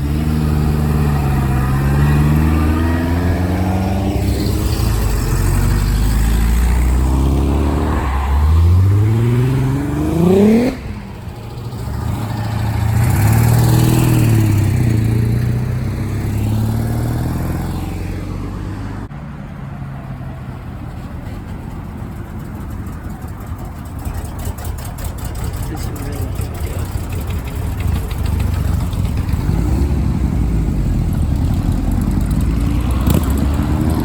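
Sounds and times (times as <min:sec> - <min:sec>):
car engine revving: 0:00.0 - 0:19.1, 0:23.5 - 0:34.0
car passing: 0:00.0 - 0:34.0
car engine running steadily: 0:22.4 - 0:31.8.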